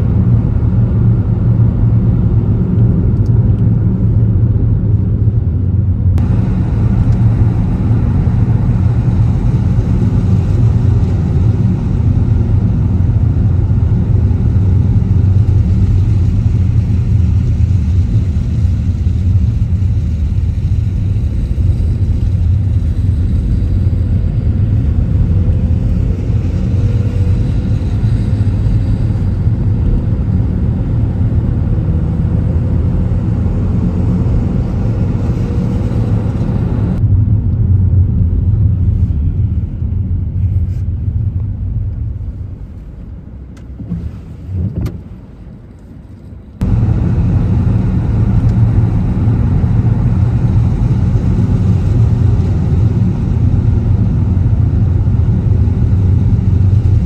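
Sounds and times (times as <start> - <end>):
faint rising whine: 0.0 - 17.2, 46.6 - 57.0
car driving rumble: 0.0 - 57.0.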